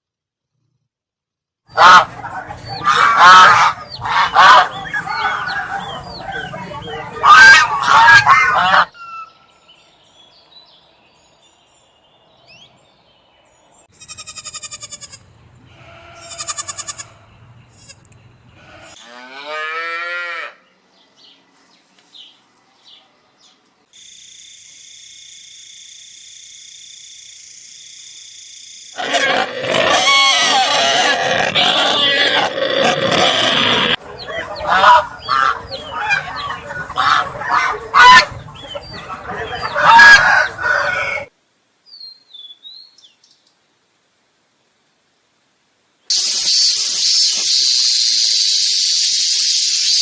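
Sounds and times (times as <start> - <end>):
honking animal calls: 1.7 - 9.3, 29.0 - 41.3
drawn-out pitched animal call: 1.7 - 9.4, 13.9 - 18.0, 29.0 - 41.3, 46.1 - 50.0
high-pitched hiss with held tone: 41.4 - 50.0
short buzzy calls: 46.1 - 50.0.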